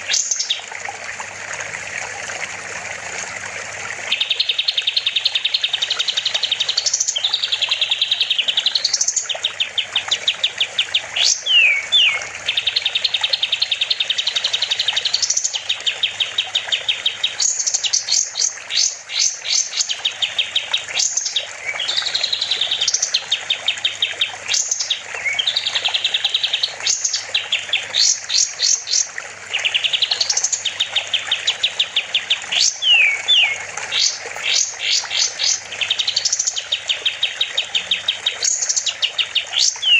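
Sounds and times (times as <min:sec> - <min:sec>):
songbird singing trills: 0:04.1 - 0:39.9.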